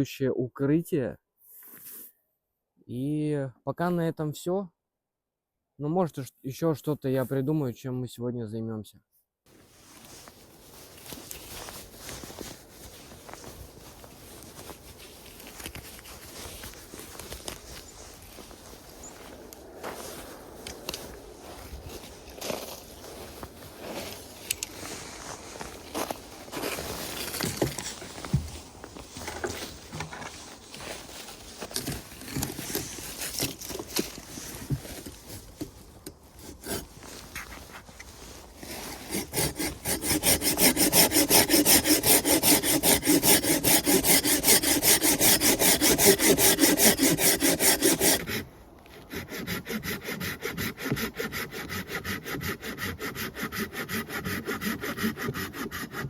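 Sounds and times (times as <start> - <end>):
handling noises: 9.5 - 39.8
hand saw cutting wood: 31.8 - 56.0.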